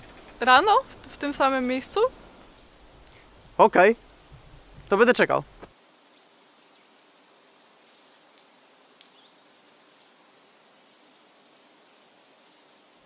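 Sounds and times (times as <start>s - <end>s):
soft bird chirps: 2.1s - 3.5s, 5.4s - 8.1s, 9.0s - 12.8s.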